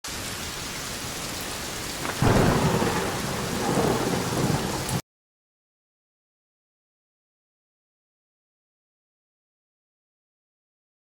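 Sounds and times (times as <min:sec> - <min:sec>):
steady rain: 0:00.0 - 0:05.0
thunder rumbling: 0:02.0 - 0:05.0.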